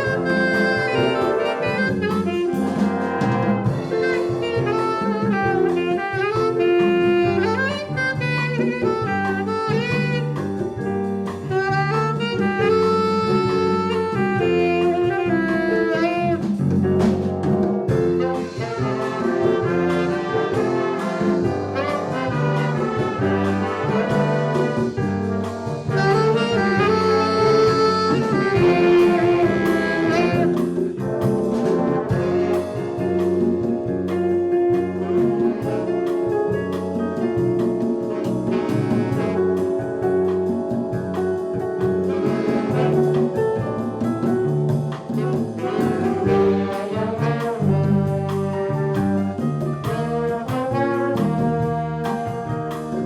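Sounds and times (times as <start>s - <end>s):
trombones and trumpets: 0.0s - 53.0s
saxophones: 25.9s - 30.8s.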